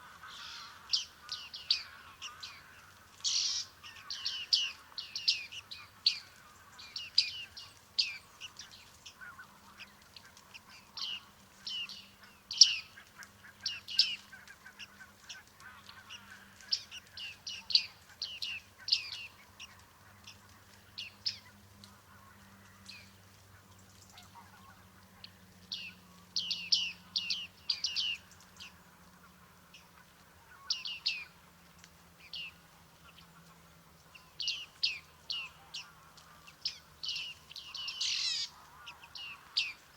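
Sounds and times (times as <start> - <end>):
birds giving high nasal calls: 0.0 - 20.4, 34.1 - 39.9.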